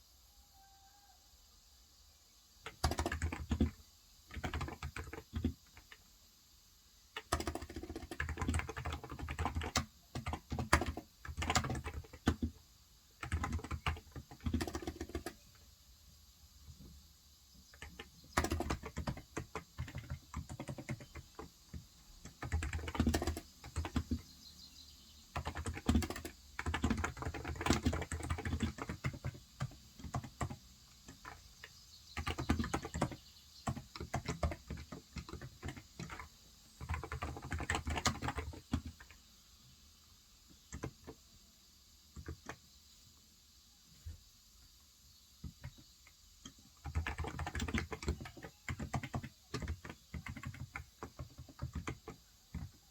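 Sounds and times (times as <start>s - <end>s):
typing on a keyboard: 2.6s - 6.1s, 7.1s - 15.6s, 17.6s - 24.3s, 25.3s - 39.2s, 40.5s - 41.2s, 42.1s - 42.7s, 45.4s - 52.9s.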